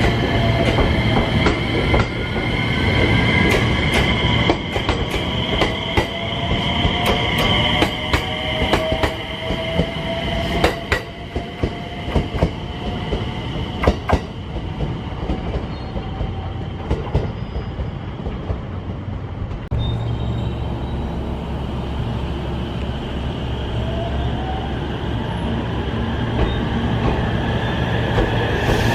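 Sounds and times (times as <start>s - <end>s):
high squeal: 0.0s - 11.3s, 19.7s - 21.6s, 23.0s - 28.9s.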